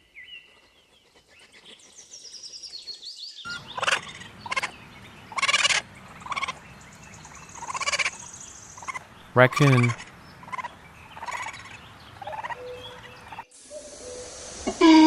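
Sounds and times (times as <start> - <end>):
hedgehog calls: 8.8 - 12.7.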